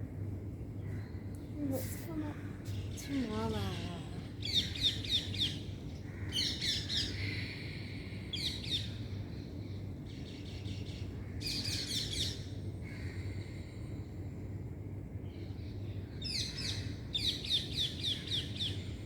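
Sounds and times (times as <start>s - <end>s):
steady low hum: 0.0s - 19.0s
birds chirping: 0.8s - 12.7s.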